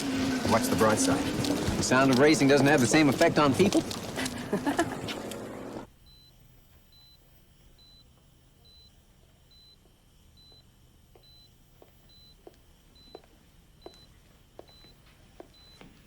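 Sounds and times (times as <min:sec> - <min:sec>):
patient monitor beeping: 0:05.0 - 0:15.9.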